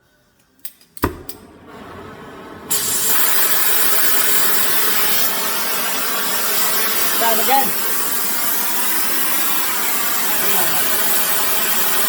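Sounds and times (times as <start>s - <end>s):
torch igniter clicks: 0.4s - 1.5s
torch ignition pop: 1.0s - 1.5s
torch flame hissing: 1.7s - 12.0s.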